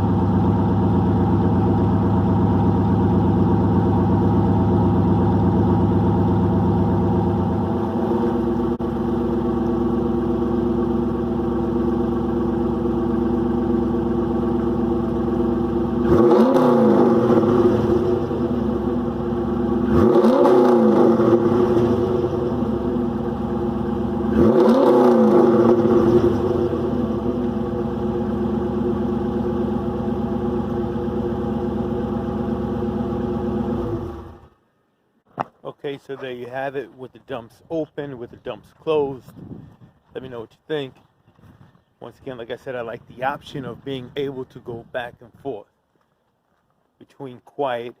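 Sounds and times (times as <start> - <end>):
car engine idling and revving: 0.0 - 34.7.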